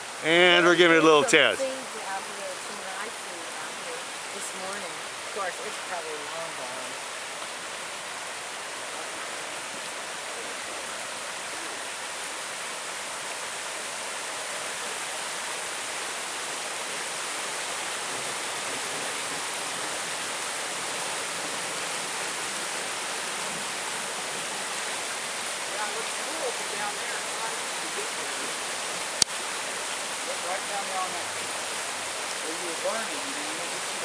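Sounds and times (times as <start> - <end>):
floodwater rushing: 0.0 - 34.0.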